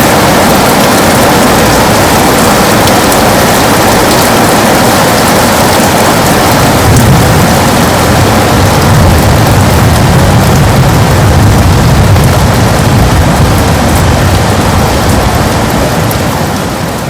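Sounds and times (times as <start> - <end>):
heavy rain on a window: 0.0 - 17.0
low rumble: 6.4 - 16.6.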